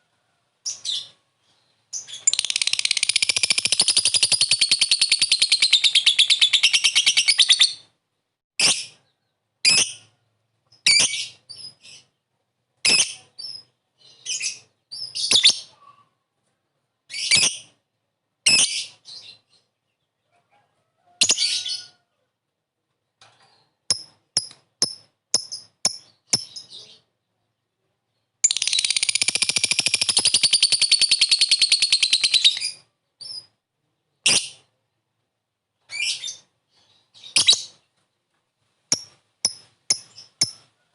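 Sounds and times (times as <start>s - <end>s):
bird rapid rolling chatter: 2.3s - 7.4s, 28.5s - 32.5s.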